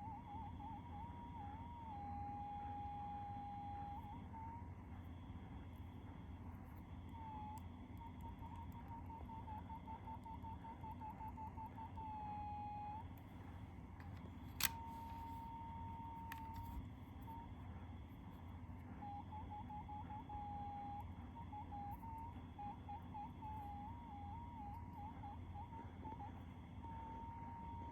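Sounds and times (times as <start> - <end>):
low steady hum: 0.0 - 27.9
sharp click: 14.0 - 15.2.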